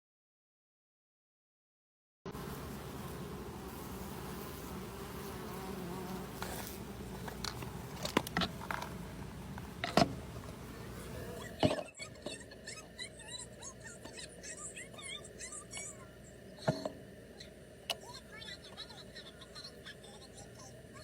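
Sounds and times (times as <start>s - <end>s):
bees humming in a hive: 2.3s - 11.8s.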